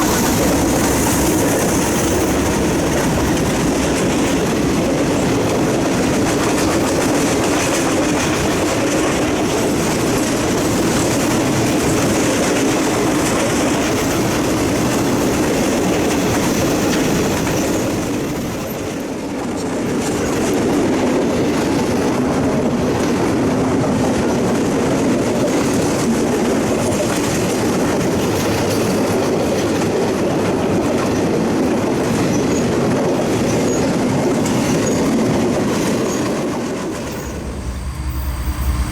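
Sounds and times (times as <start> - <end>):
train wheels clattering over rail joints: 0.0 - 38.9.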